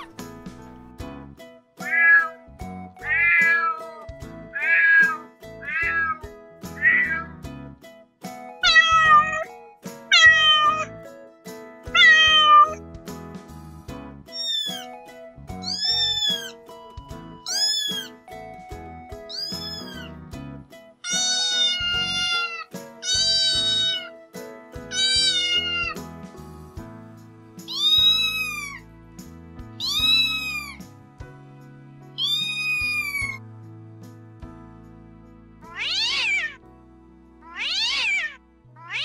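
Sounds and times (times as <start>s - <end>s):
soft background music: 0.0s - 39.0s
cat meowing: 1.8s - 2.4s, 3.0s - 7.4s, 8.6s - 9.5s, 10.1s - 11.0s, 11.9s - 12.8s, 14.3s - 14.9s, 15.6s - 16.6s, 17.4s - 18.2s, 19.3s - 20.2s, 21.0s - 24.2s, 24.9s - 26.0s, 27.6s - 28.8s, 29.8s - 30.8s, 32.2s - 33.4s, 35.7s - 36.6s, 37.4s - 39.0s.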